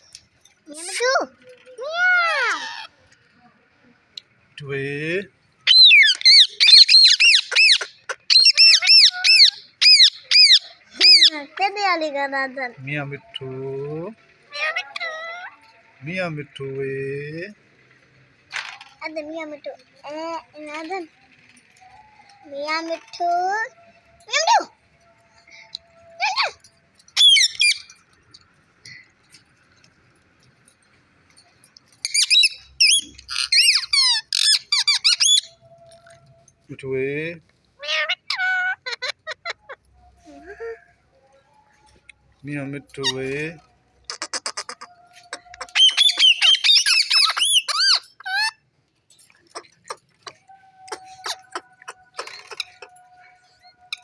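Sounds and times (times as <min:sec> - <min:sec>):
parrot chirping: 0:01.8 - 0:03.0, 0:05.6 - 0:16.0, 0:19.0 - 0:28.6, 0:31.4 - 0:36.3, 0:37.8 - 0:48.7, 0:49.3 - 0:54.0
parrot squawking and whistling: 0:05.7 - 0:11.4, 0:26.2 - 0:28.0, 0:32.0 - 0:35.6, 0:44.0 - 0:48.6, 0:49.4 - 0:54.0.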